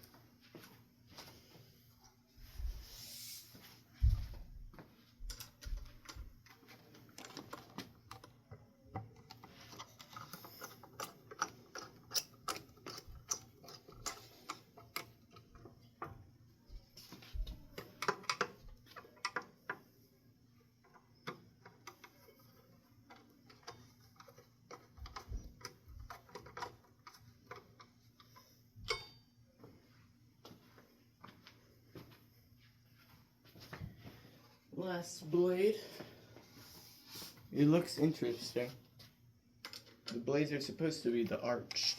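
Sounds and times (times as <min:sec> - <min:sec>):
screws and metal hardware clicking: 0:09.2 - 0:15.7
sharp ringing metallic click: 0:28.9 - 0:29.2.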